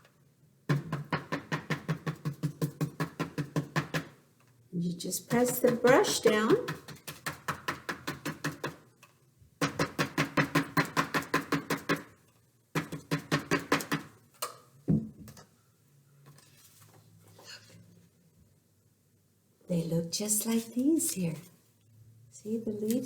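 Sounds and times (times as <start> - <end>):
brush tapping on paper: 0.7 - 4.2, 5.3 - 9.0, 9.6 - 12.1.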